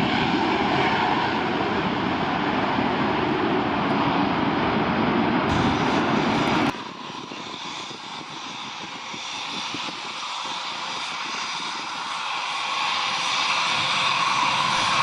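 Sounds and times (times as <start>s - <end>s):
military aircraft engines: 0.0s - 15.0s.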